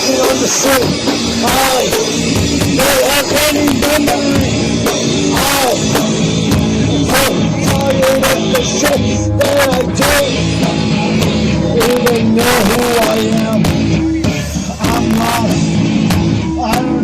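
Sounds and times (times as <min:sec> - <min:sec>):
cymbal crashes: 0:00.0 - 0:06.9
drums: 0:00.0 - 0:17.0
guitars: 0:00.0 - 0:17.0
person singing: 0:00.0 - 0:17.0.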